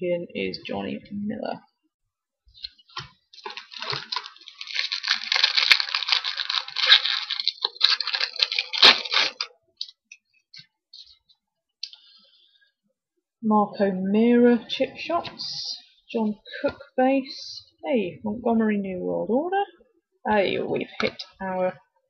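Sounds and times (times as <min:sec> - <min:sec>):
foil wrapper tearing and crinkling: 0:02.7 - 0:09.5.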